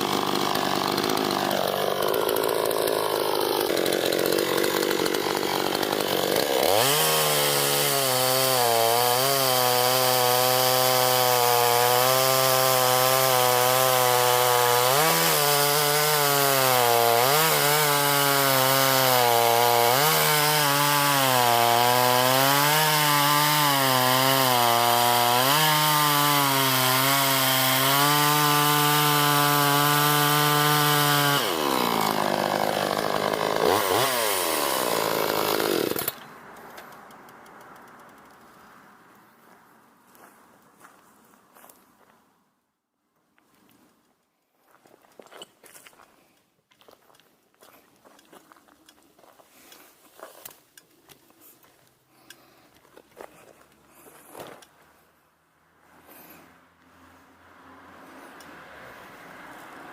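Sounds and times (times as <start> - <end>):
chainsaw cutting wood: 0.0 - 38.4, 56.0 - 56.6, 57.9 - 59.9.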